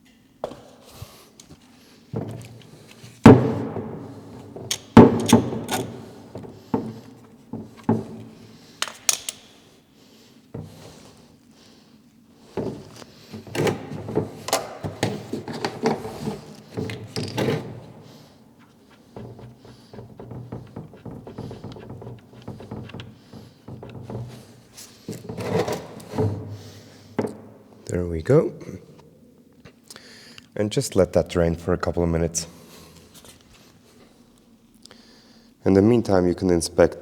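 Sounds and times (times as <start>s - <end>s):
sharp metal knocks: 3.3s - 7.1s.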